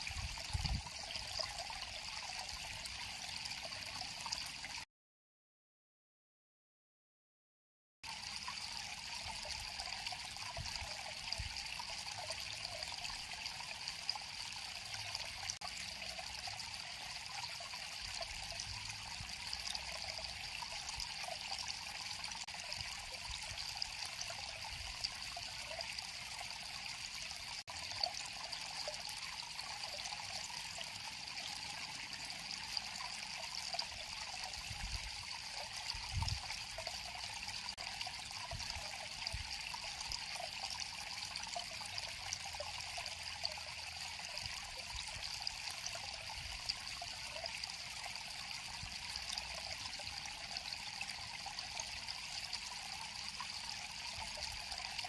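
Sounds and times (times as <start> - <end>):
river water flowing: 8.1 - 55.0.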